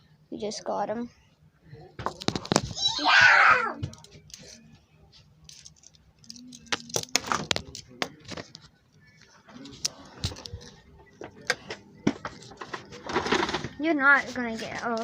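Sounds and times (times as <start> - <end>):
faint voices: 0.7 - 15.0
objects clicking and knocking: 2.0 - 2.7, 5.5 - 8.7, 9.6 - 13.8.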